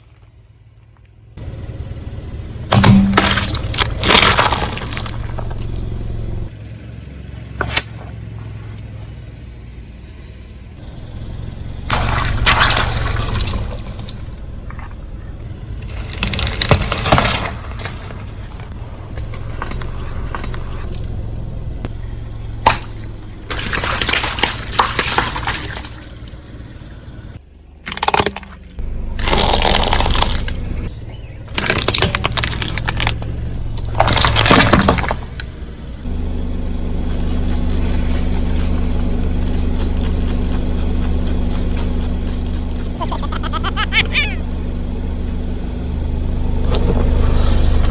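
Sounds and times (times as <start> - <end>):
car engine running low: 0.0 - 47.9
tyre crunching brittle objects: 2.7 - 6.1, 27.8 - 30.9, 31.5 - 35.6.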